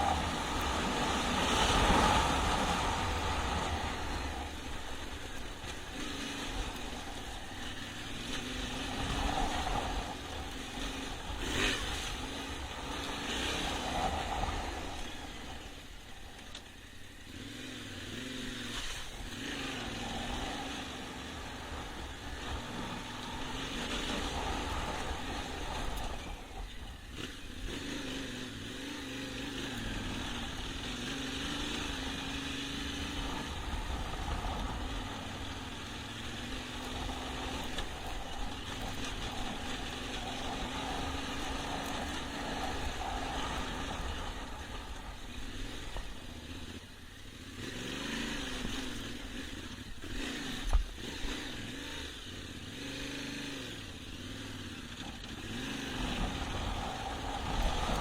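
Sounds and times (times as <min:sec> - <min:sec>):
motorcycle engine revving: 0:00.0 - 0:58.0
wind noise on microphone: 0:55.5 - 0:58.0.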